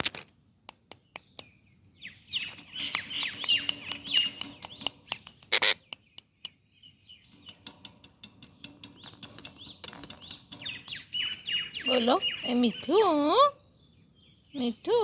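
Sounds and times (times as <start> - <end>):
parrot chirping: 2.0 - 7.6, 9.0 - 13.4
sharp clicks: 2.4 - 6.6.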